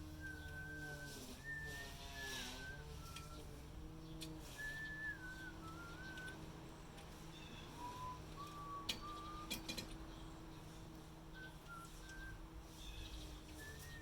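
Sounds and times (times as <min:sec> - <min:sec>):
person whistling a tune: 0:00.2 - 0:03.4, 0:04.6 - 0:06.4, 0:07.8 - 0:09.7, 0:11.4 - 0:12.4, 0:13.6 - 0:14.0.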